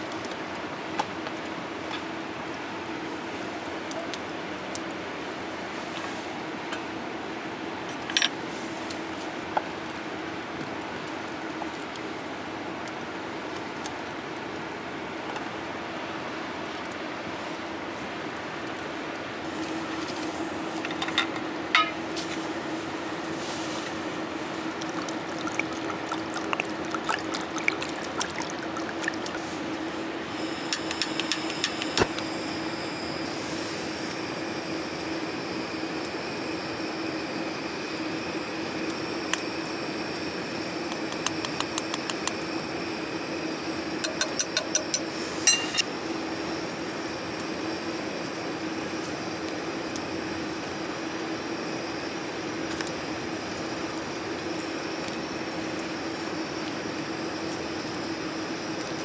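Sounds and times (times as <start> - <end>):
low steady hum: 18.5 - 34.6.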